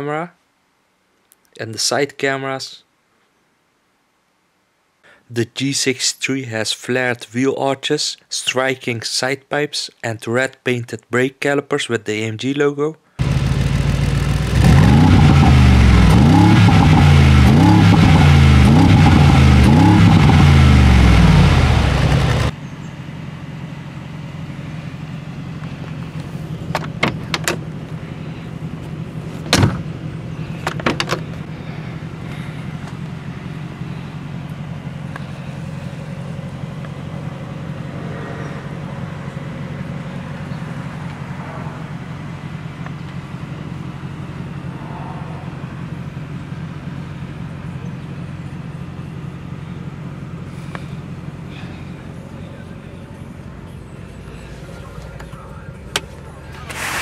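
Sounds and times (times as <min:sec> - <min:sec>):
car engine revving: 0:13.2 - 0:22.6, 0:24.2 - 0:57.0
steady low hum: 0:16.8 - 0:57.0.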